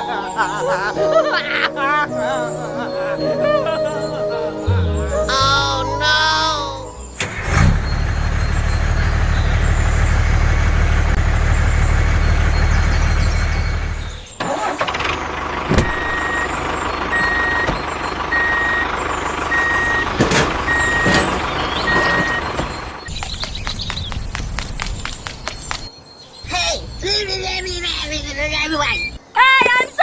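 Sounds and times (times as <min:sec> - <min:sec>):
vehicle engine humming: 0:00.0 - 0:25.9
reversing alarm beeping: 0:06.9 - 0:10.5, 0:15.7 - 0:23.1.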